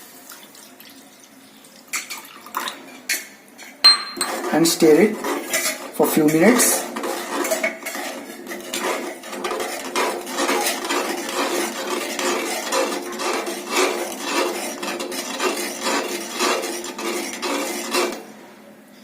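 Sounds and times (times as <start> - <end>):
spoon stirring and scraping pan: 1.9 - 18.4.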